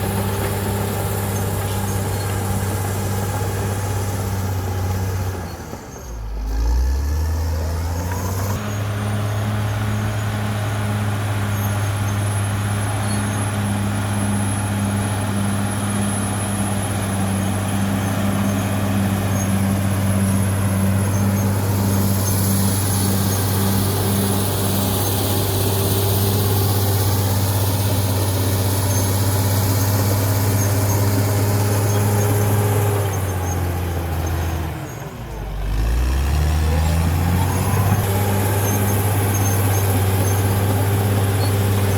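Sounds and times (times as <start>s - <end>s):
bulldozer diesel engine running: 0.0s - 41.9s.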